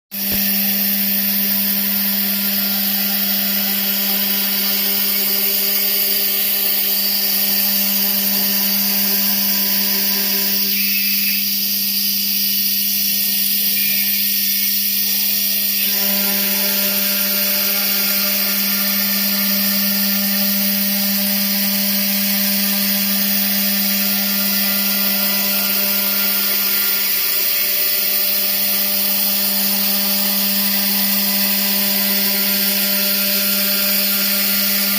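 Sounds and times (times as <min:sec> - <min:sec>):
stone-carving router droning: 0:00.1 - 0:34.9.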